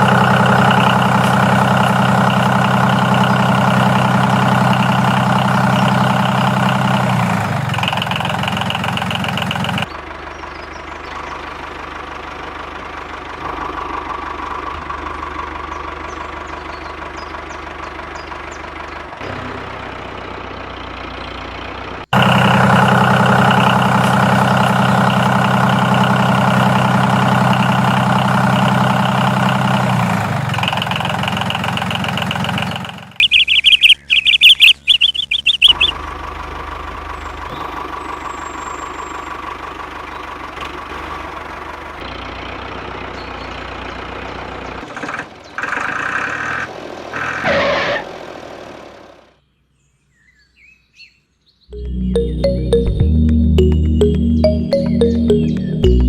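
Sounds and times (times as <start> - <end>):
sharp high-pitched chirping bursts: 33.2 - 36.0.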